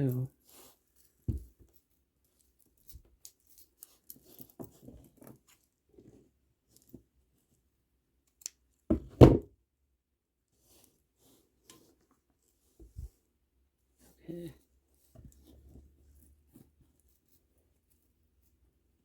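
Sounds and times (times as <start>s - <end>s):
plastic beads clicking and rustling: 2.2s - 5.7s.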